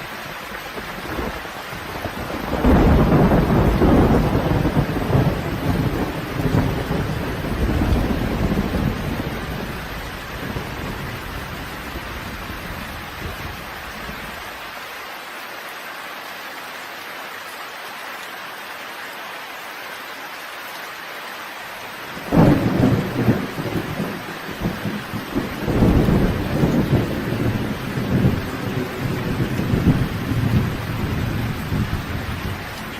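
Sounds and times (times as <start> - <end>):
steady rain: 0.0 - 32.9
thunder rumbling: 1.1 - 13.6, 22.1 - 32.9
loud thunderclap: 2.0 - 9.8, 22.2 - 32.6.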